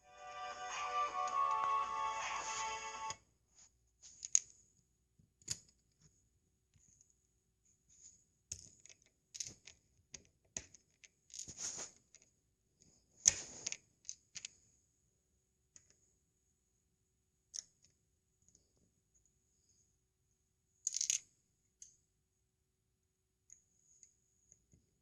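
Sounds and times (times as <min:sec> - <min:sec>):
plastic bricks clicking together: 0:08.5 - 0:11.5, 0:20.8 - 0:21.9.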